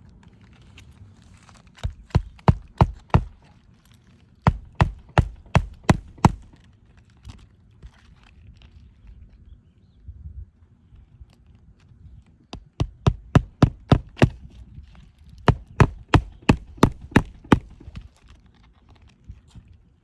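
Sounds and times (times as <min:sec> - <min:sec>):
hammer driving nails: 0:01.8 - 0:03.5, 0:04.5 - 0:06.6, 0:12.6 - 0:14.5, 0:15.4 - 0:18.1.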